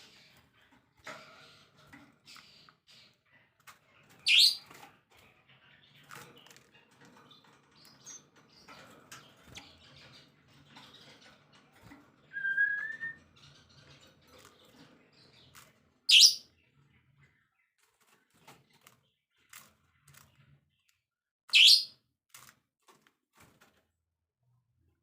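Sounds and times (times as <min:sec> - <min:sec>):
bird whistled note: 0:12.3 - 0:13.2
songbird calls: 0:12.3 - 0:13.2.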